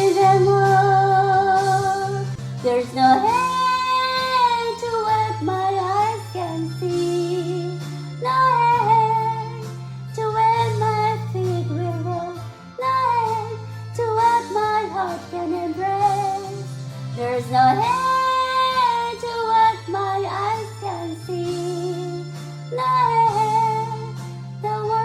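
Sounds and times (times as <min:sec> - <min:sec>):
karaoke backing music: 0:00.0 - 0:25.0.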